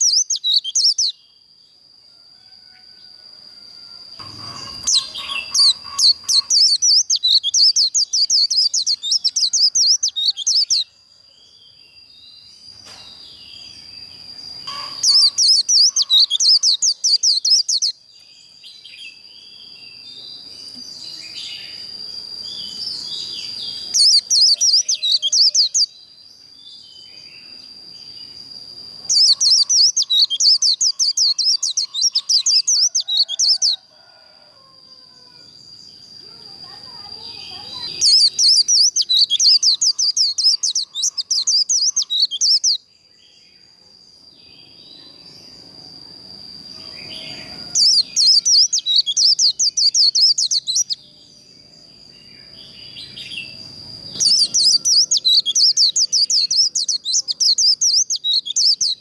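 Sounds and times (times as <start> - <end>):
bird fast trilled song: 0.0 - 1.2, 4.1 - 10.9, 13.3 - 18.1, 18.7 - 26.0, 28.0 - 33.8, 36.6 - 42.8, 46.8 - 51.0, 53.0 - 59.0
soft bird twittering: 0.0 - 1.2, 4.2 - 10.9, 12.8 - 26.0, 29.0 - 33.8, 36.0 - 42.8, 46.8 - 51.0, 52.4 - 59.0
thin steady high tone: 0.0 - 12.2, 13.4 - 18.3, 27.1 - 59.0.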